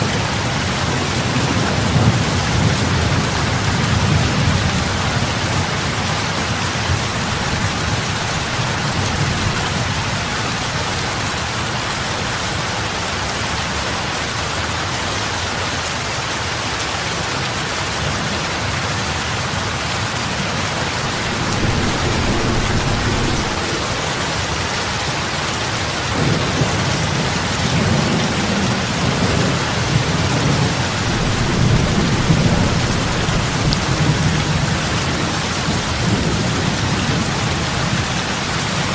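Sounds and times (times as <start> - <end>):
heavy rain on water: 0.0 - 38.9
low rumbling: 20.7 - 26.3.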